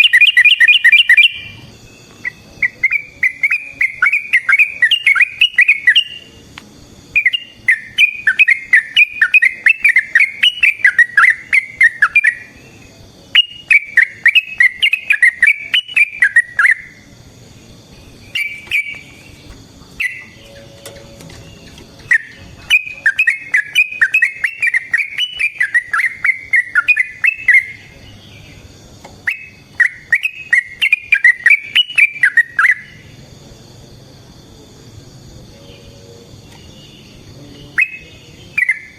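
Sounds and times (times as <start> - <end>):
bird singing bubbling phrases: 0.0 - 6.3, 7.0 - 17.1, 18.0 - 20.6, 21.3 - 28.7, 29.3 - 33.0, 37.7 - 38.9
high insect buzz: 0.0 - 38.9.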